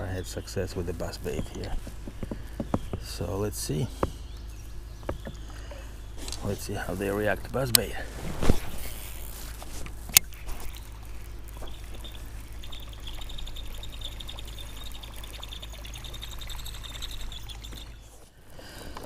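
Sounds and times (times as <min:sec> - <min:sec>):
lure blade rattling across water: 0:10.1 - 0:18.1.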